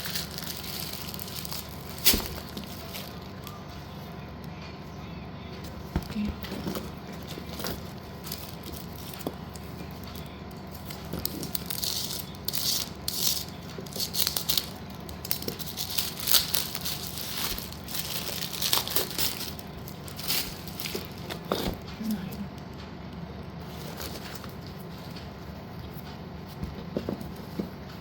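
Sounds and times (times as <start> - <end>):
plastic crinkling: 0.0 - 3.6, 6.1 - 21.9.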